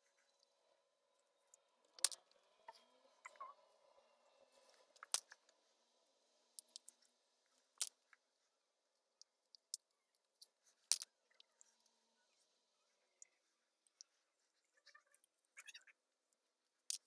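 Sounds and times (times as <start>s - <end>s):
small hard objects clicking: 2.0s - 2.3s, 7.8s - 8.1s, 9.2s - 11.7s.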